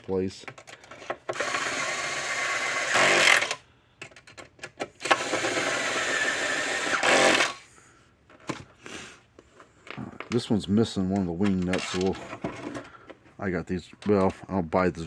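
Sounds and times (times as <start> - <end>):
power drill driving bolts: 1.0 - 3.6, 5.0 - 7.6.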